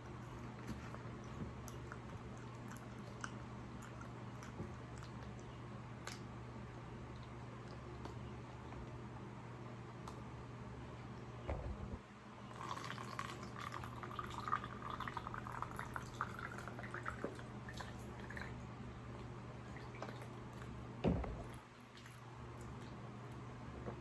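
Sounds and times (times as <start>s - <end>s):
liquid poured into a glass: 12.5s - 18.6s.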